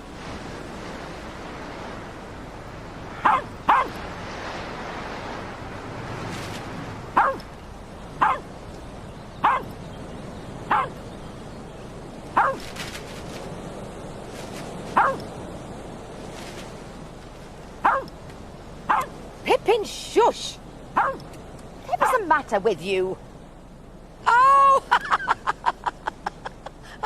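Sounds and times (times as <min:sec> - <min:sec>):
dog barking: 0:03.2 - 0:04.0, 0:07.2 - 0:07.4, 0:08.2 - 0:08.4, 0:09.4 - 0:09.7, 0:10.7 - 0:11.0, 0:12.4 - 0:12.6, 0:15.0 - 0:15.2, 0:17.8 - 0:18.1, 0:18.9 - 0:19.1, 0:21.0 - 0:21.2.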